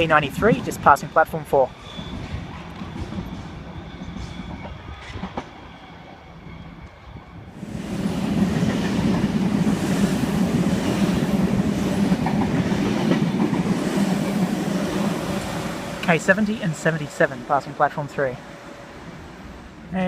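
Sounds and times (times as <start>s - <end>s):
electric train passing: 0.0s - 20.0s
rail clicks: 0.1s - 1.3s, 7.6s - 20.0s.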